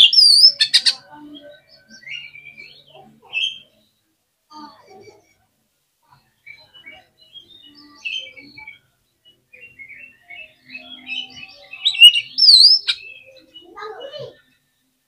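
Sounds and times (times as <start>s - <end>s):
bird chirping and whistling: 0.0s - 1.0s, 9.6s - 13.6s.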